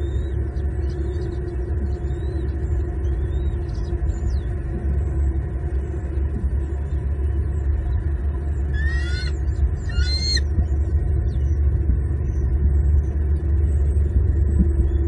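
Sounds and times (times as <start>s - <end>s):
steady low rumble: 0.0s - 15.0s
eagle squealing calls: 8.7s - 10.5s.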